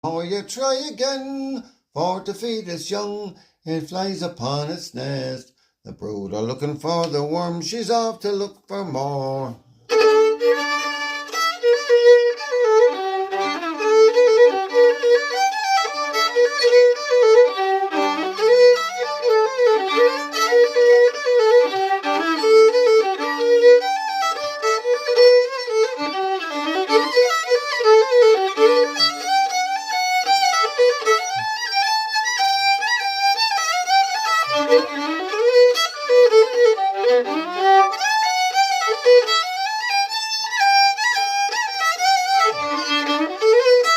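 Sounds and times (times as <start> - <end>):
fiddle playing quick melody: 9.9 - 43.9.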